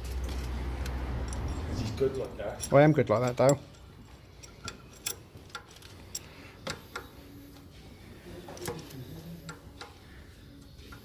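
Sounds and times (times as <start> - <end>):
hand ratchet clicking: 2.6 - 7.2, 8.6 - 10.0.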